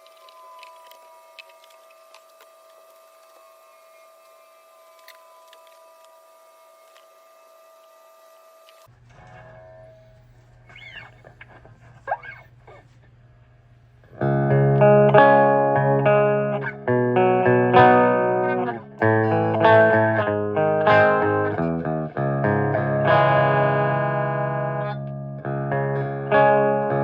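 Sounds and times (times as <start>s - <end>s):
distorted electric guitar chords: 14.0s - 27.0s.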